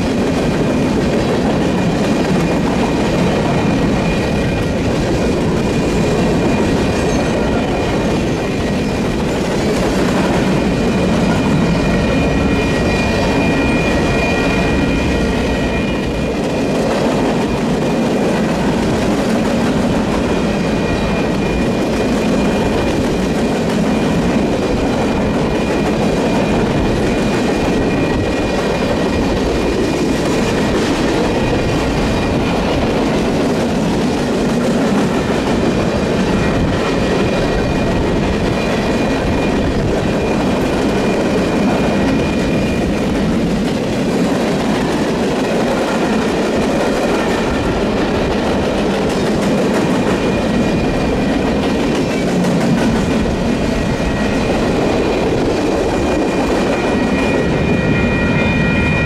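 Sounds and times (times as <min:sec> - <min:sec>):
freight train wheels rumbling: 0:00.0 - 0:59.0
high-pitched ringing tone: 0:10.4 - 0:16.7, 0:53.6 - 0:59.0.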